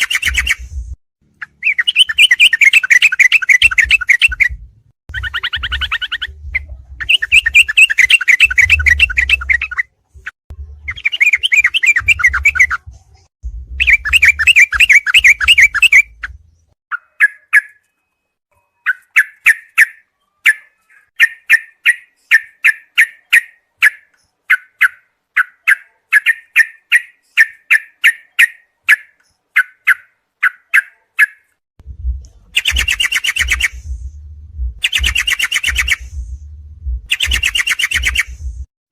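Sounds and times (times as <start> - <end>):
bulbul chattering song: 0.0 - 9.9, 10.7 - 12.9, 13.8 - 17.9, 18.5 - 31.5, 32.3 - 38.7
low rumble: 12.7 - 14.3, 31.8 - 33.0, 33.6 - 35.2, 35.8 - 37.1, 38.3 - 38.7
short bird chirps: 32.6 - 33.9, 34.8 - 36.2, 37.1 - 38.4.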